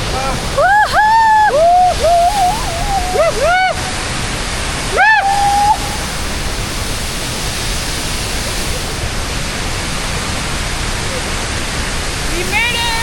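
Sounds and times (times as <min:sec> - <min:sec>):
waterfall rushing: 0:00.0 - 0:13.0
person whooping excitedly: 0:00.6 - 0:04.0, 0:04.9 - 0:06.0.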